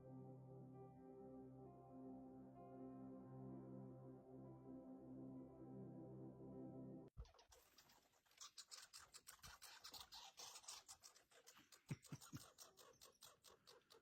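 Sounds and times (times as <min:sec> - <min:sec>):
raccoons scratching and clicking: 0:07.2 - 0:14.0.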